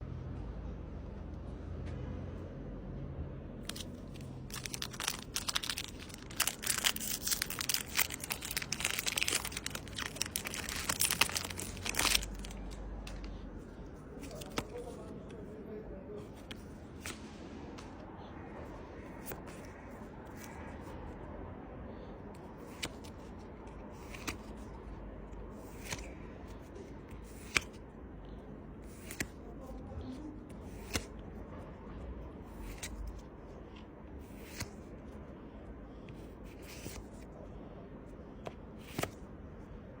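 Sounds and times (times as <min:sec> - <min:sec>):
trading cards snapping: 0:03.6 - 0:13.4, 0:14.2 - 0:15.0, 0:38.8 - 0:39.2.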